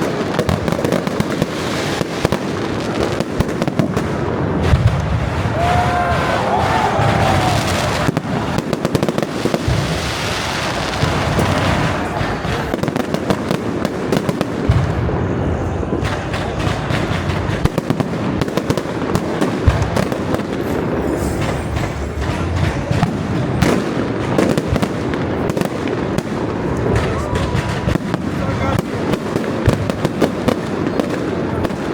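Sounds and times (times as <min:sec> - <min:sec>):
fireworks bursts rumbling: 0:00.0 - 0:31.9
fireworks crackling: 0:00.0 - 0:31.9.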